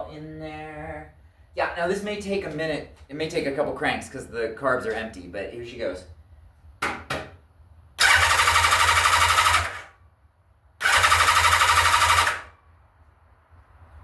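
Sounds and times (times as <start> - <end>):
motorcycle starter cranking: 8.0 - 10.0, 10.8 - 12.5.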